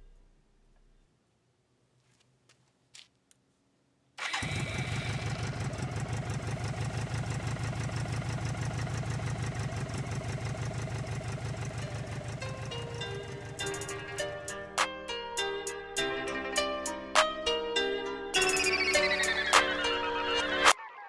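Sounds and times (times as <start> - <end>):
motorcycle engine running: 4.2 - 14.7.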